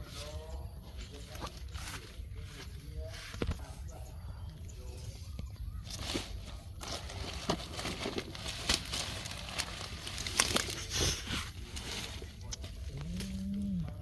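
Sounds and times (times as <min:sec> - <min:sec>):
rustling and crackling: 0:04.9 - 0:14.0.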